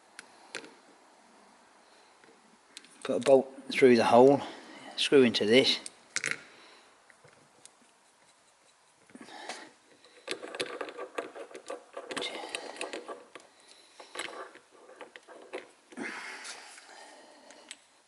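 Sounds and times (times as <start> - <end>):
metal parts scraping: 10.0 - 15.8.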